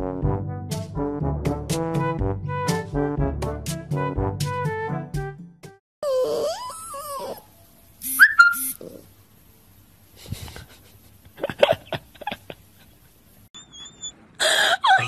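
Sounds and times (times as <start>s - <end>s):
puppy howling: 6.0s - 7.6s
puppy squealing: 6.0s - 9.0s, 13.6s - 15.0s.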